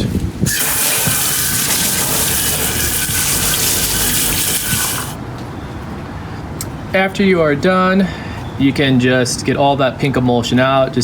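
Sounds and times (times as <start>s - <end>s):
water spraying from hose: 0.5s - 5.2s.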